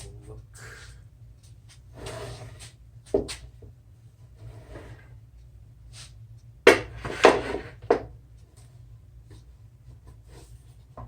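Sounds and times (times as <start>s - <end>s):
steady low hum: 0.0s - 11.0s
wood and tools knocking and scraping: 1.4s - 3.7s, 6.7s - 8.7s.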